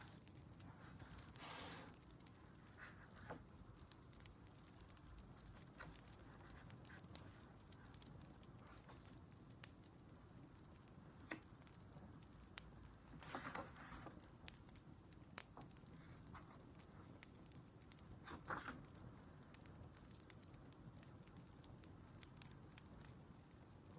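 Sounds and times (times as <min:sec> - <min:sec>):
wood fire crackling: 0:00.0 - 0:23.9.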